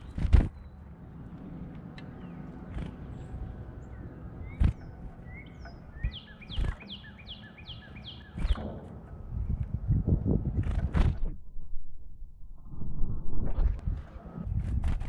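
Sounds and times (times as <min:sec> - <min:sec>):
songbird chirps and whistles: 0:03.9 - 0:08.6
sharp knocks: 0:08.4 - 0:09.1.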